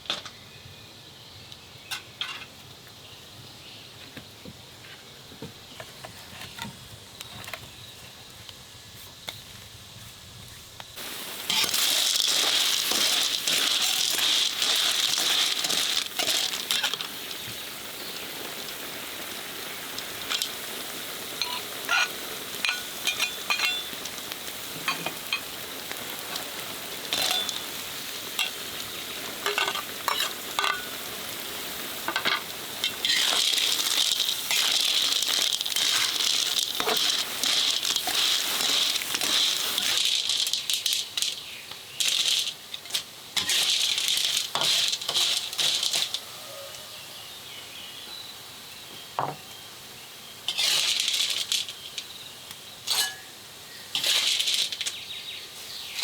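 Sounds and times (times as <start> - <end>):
food sizzling in a pan: 11.0 - 56.0
stirring clicks and scrapes: 11.5 - 17.6, 32.1 - 46.2, 50.5 - 52.1, 54.0 - 55.0.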